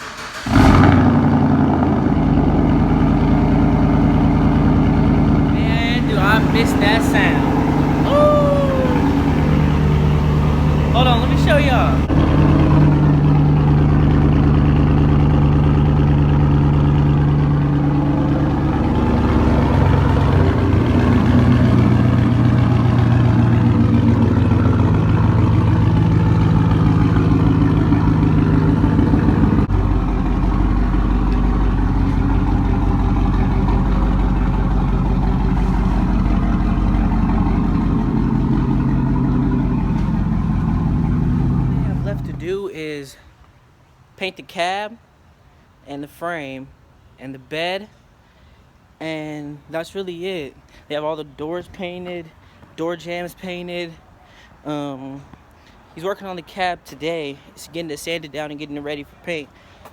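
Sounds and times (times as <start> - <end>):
truck engine revving: 0.0 - 42.5.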